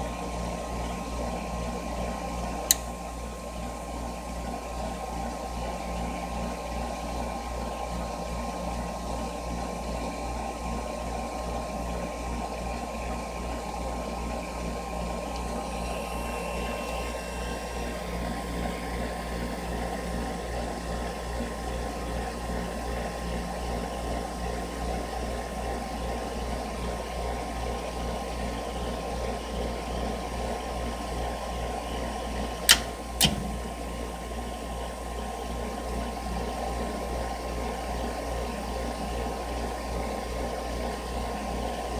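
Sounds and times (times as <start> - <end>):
furnace rumbling: 32.5 - 34.2
sharp clicks: 32.7 - 33.7.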